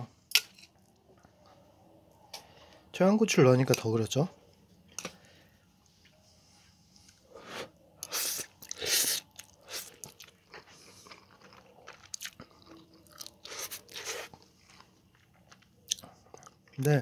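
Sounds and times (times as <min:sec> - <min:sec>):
person chewing crunchy food: 0:07.4 - 0:16.9.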